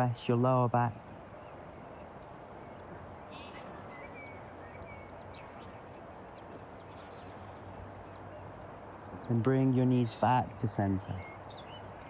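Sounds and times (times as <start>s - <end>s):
faint hiss of open air: 0.0s - 12.0s
small birds chirping: 0.0s - 12.0s.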